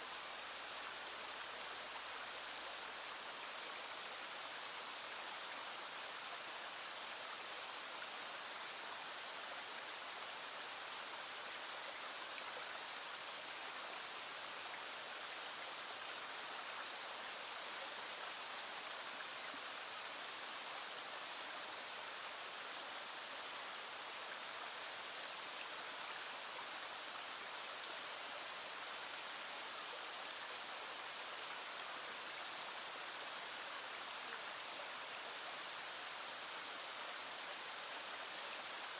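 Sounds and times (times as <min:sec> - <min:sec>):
small stream flowing: 0:00.0 - 0:38.9.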